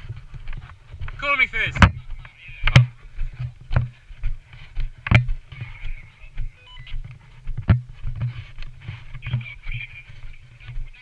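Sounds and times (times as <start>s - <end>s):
footsteps walking: 0.0s - 11.0s
short electronic beep: 6.5s - 7.0s.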